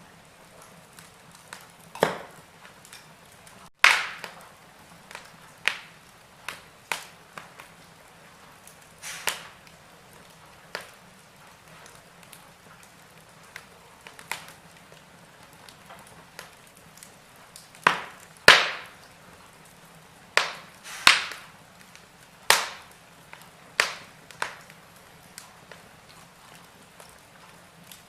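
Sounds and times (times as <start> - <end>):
wood fire crackling: 0.0 - 28.0
sharp loud fire pops: 1.9 - 2.4, 3.8 - 4.5, 9.0 - 9.6, 17.8 - 19.0, 20.4 - 21.5, 22.5 - 22.9, 23.8 - 24.6.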